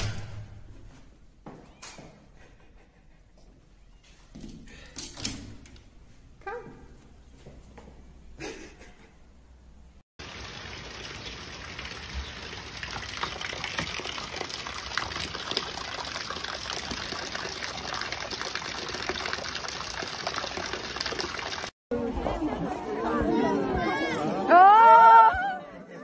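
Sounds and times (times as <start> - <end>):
steady rain falling: 10.2 - 21.7.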